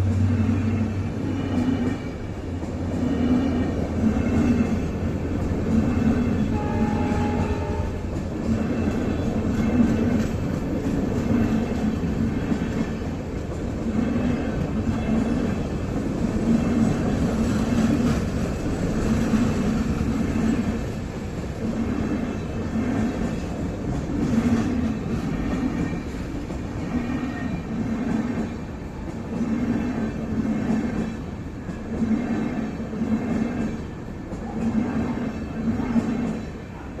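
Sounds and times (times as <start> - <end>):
train rumbling: 0.0 - 37.0.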